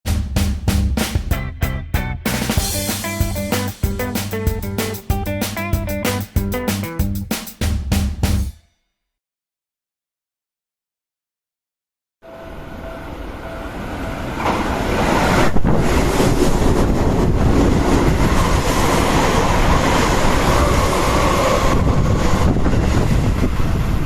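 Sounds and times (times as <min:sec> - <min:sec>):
electric train passing: 0:02.3 - 0:06.9, 0:12.2 - 0:24.0
train whine: 0:12.2 - 0:24.0.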